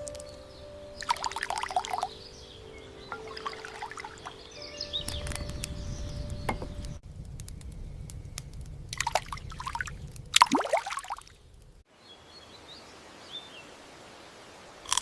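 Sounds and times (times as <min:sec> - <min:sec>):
chirping bird calls: 0:00.0 - 0:07.0
liquid pouring and trickling: 0:01.0 - 0:02.1, 0:03.1 - 0:04.4, 0:09.0 - 0:11.3.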